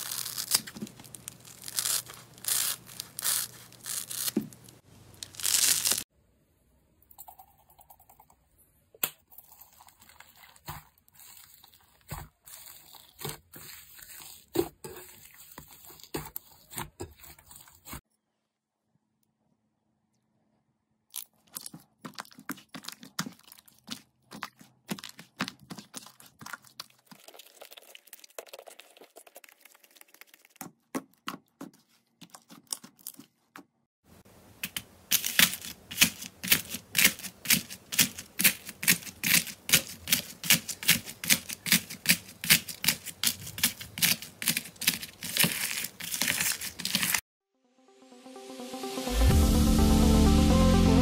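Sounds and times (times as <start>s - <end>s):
slime crackling and popping: 0.0s - 6.0s.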